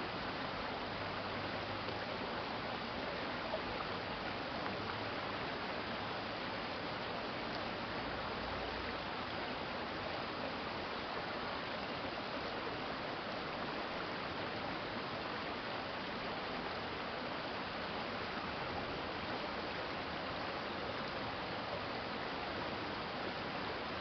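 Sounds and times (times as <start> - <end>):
stream water rushing: 0.0 - 24.0.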